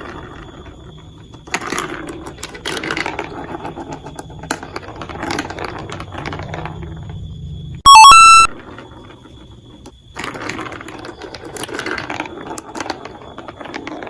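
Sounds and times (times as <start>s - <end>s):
marbles clattering on plastic track: 0.0s - 7.2s, 8.6s - 14.0s
loud electronic tone: 7.8s - 8.6s.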